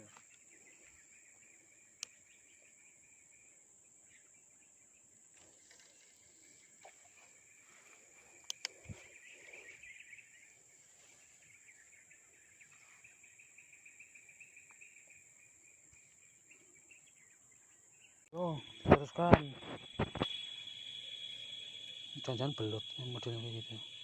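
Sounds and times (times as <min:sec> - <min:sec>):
insect chirring trill: 0:00.0 - 0:24.0
insects droning: 0:00.0 - 0:24.0
sharp clicks: 0:08.4 - 0:09.0, 0:18.8 - 0:20.3.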